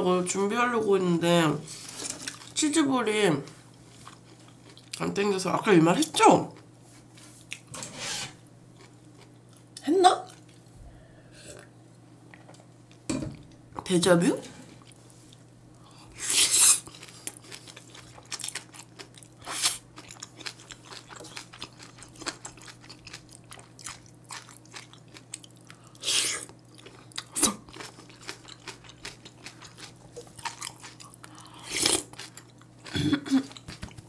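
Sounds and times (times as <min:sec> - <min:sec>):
person chewing food: 0:03.7 - 0:05.0, 0:07.1 - 0:07.7, 0:08.8 - 0:11.7, 0:14.8 - 0:34.0.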